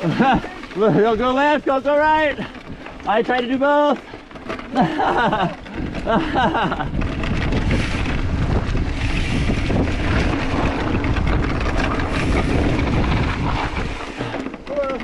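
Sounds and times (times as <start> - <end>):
wind buffeting microphone: 4.8 - 15.0.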